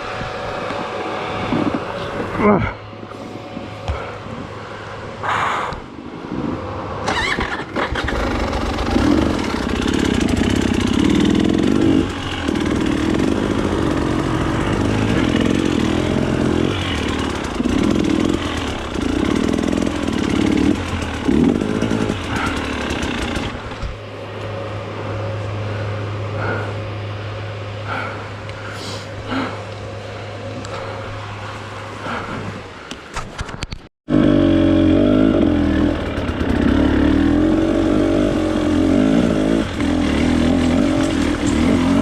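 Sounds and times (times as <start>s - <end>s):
motorcycle engine revving and idling: 0.0s - 5.0s, 7.0s - 32.4s, 34.1s - 42.0s.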